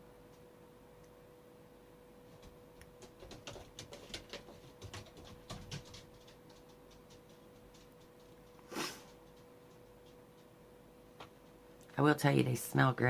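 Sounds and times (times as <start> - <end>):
steady hum: 0.0 - 13.0
small faint clicks and taps: 2.3 - 10.6.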